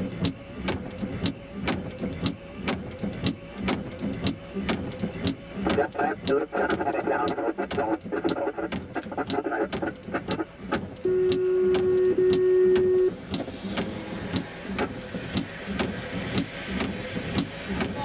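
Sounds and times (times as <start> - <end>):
steady radio tone: 5.6 - 10.5
radio static with crackles: 5.6 - 10.6.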